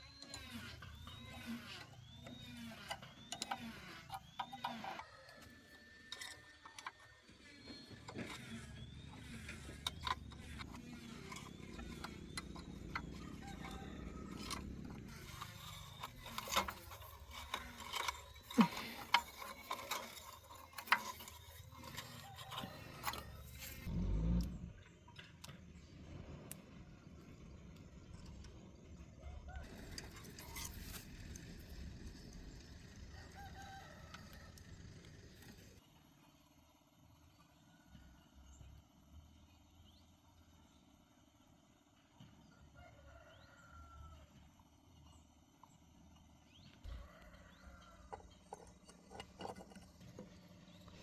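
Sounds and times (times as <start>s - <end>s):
hand tools clanking on metal: 9.8s - 23.9s.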